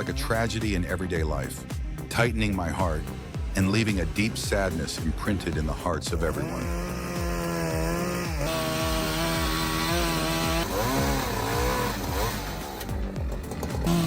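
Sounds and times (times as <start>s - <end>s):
chainsaw cutting: 2.0s - 14.0s.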